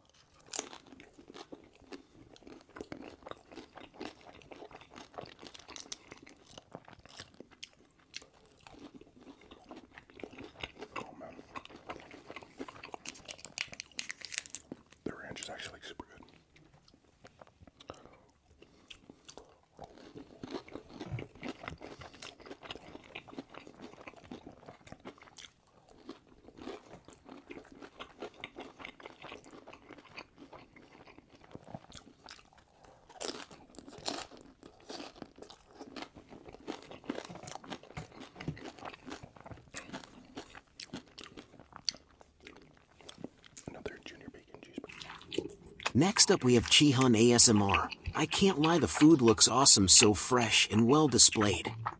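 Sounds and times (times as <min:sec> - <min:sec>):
person chewing burgers: 0:00.0 - 0:51.9.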